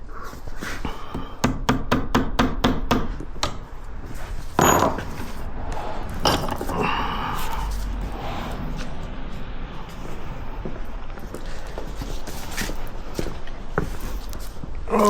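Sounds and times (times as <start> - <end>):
hammer striking metal: 4.6 - 5.3.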